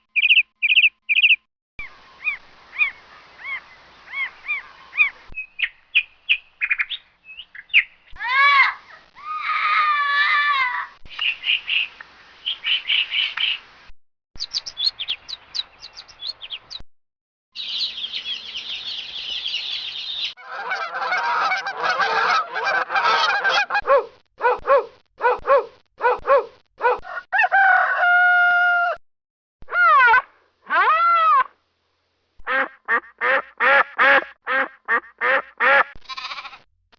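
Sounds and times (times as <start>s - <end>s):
bird chirps and trills: 0.1s - 8.2s, 11.1s - 13.6s, 14.4s - 16.8s, 17.6s - 20.4s
chickens clucking: 20.4s - 23.8s
rooster crow: 27.0s - 29.0s.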